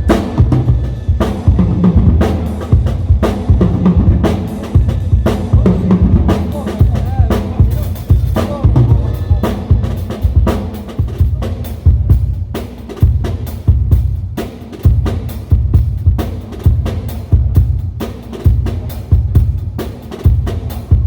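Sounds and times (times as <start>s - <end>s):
bass drum: 0.0s - 21.0s
snare drum: 0.0s - 21.0s.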